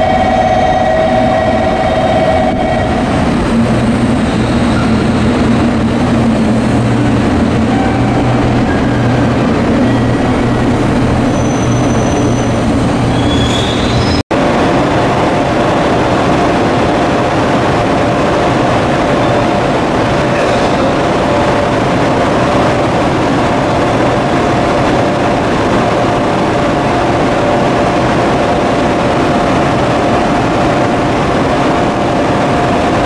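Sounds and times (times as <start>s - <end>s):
electric locomotive humming: 0.0s - 33.0s
wheel squeal: 11.3s - 14.2s.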